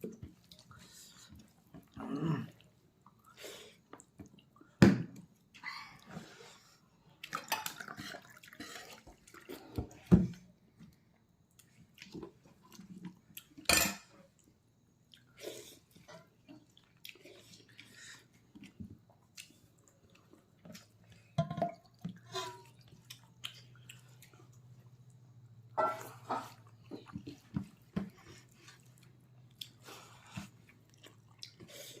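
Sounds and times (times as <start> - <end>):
wet chewing: 22.6 - 25.2, 26.0 - 32.0.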